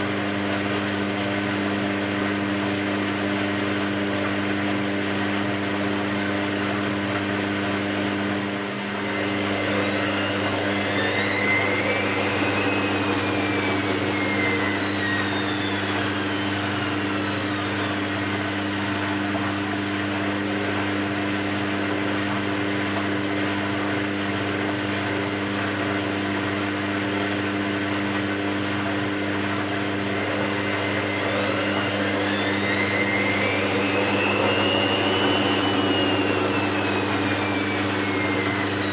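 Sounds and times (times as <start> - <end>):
washing machine humming: 5.5 - 22.1, 28.3 - 38.9
drum motor whining: 8.8 - 19.1, 30.2 - 38.9.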